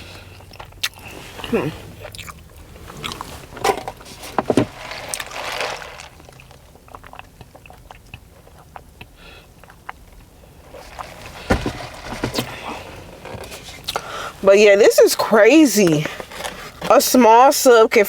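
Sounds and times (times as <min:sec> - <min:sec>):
chewing: 0:00.0 - 0:03.5, 0:05.0 - 0:11.4
rustling: 0:00.9 - 0:06.7, 0:10.6 - 0:14.6.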